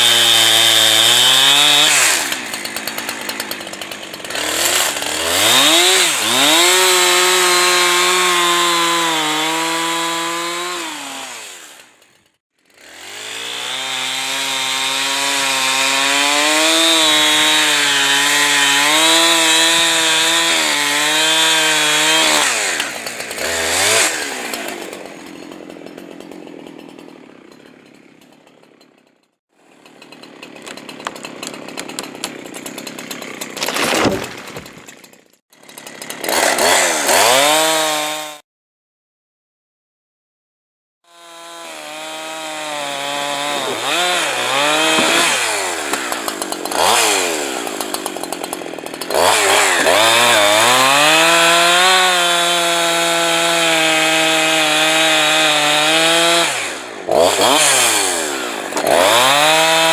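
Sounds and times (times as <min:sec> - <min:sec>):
chainsaw cutting wood: 0:00.0 - 0:38.4, 0:41.1 - 0:59.9.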